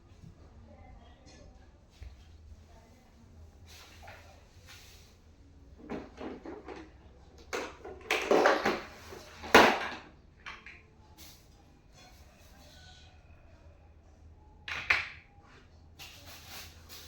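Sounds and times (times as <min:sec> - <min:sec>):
chair parts knocking together: 0:05.8 - 0:10.6.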